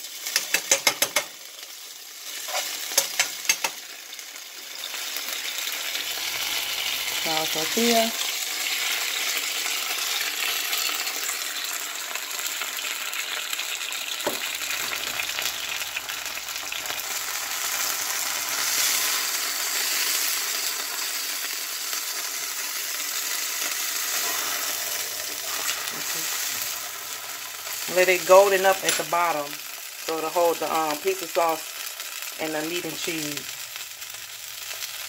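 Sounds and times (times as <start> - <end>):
tortilla sizzling in a skillet: 0.0 - 35.0.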